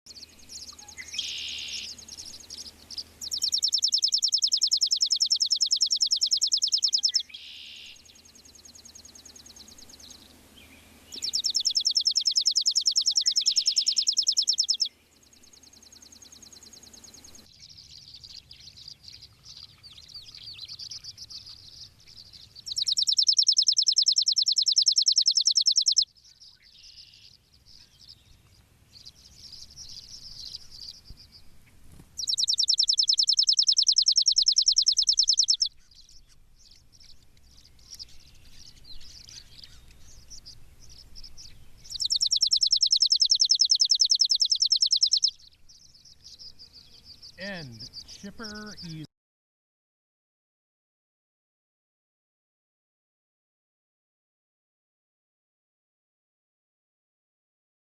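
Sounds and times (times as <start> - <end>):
faint bird chirps: 0.1 - 49.1
sparrow trilling: 0.1 - 49.1.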